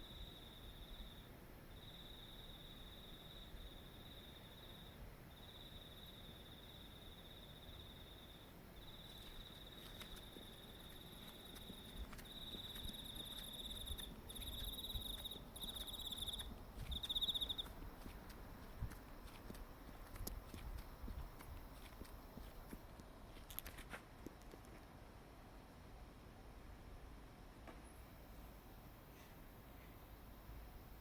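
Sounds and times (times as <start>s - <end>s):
higher-pitched insect: 0.0s - 17.8s
night insects trilling: 0.0s - 18.9s.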